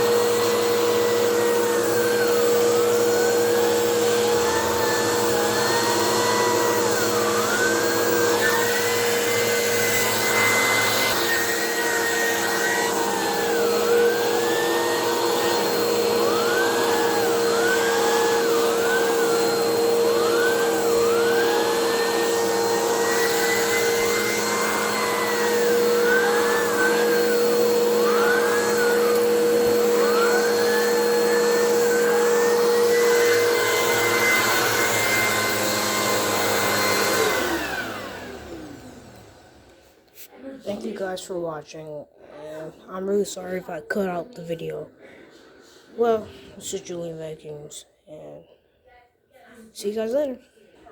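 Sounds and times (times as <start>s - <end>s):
vacuum cleaner whining: 0.0s - 48.4s.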